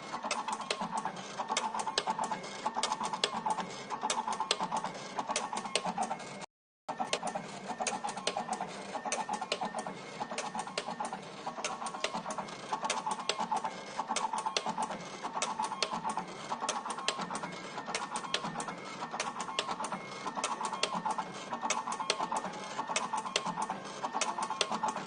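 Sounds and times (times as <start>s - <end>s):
wire cutting machine running: 6.9s - 25.0s.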